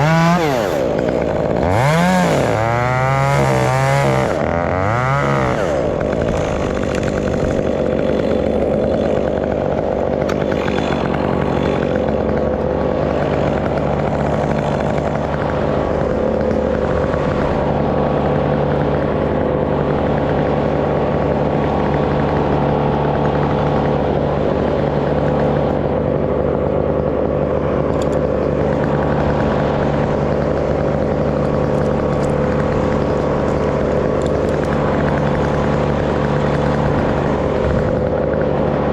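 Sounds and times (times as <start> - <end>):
chainsaw idling: 0.0 - 38.9.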